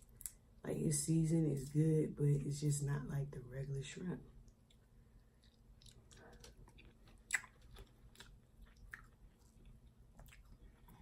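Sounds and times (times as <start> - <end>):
faint chewing: 4.4 - 11.0
wet mouth clicks: 5.4 - 7.8.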